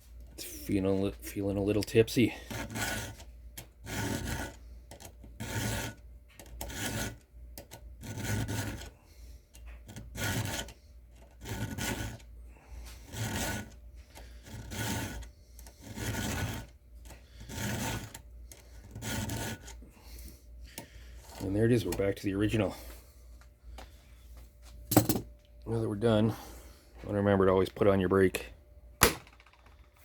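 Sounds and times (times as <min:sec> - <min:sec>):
file rasping on saw chain: 0:02.2 - 0:09.0, 0:09.8 - 0:12.3, 0:13.0 - 0:19.8.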